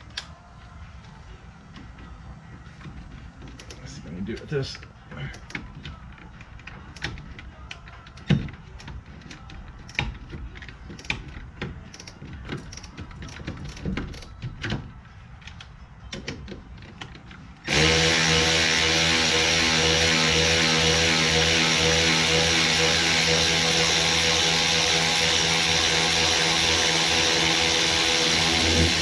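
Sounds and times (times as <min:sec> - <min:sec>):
ratchet clicking and knocking: 0:01.8 - 0:29.0
loud steady drone: 0:17.7 - 0:29.0.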